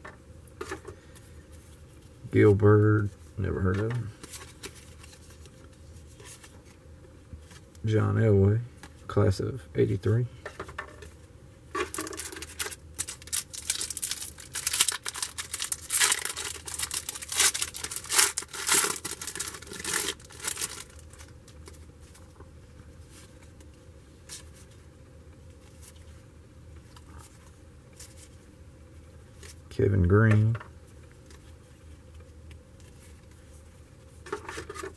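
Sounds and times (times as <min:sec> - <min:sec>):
wrapper tearing and crinkling: 0:11.9 - 0:21.8.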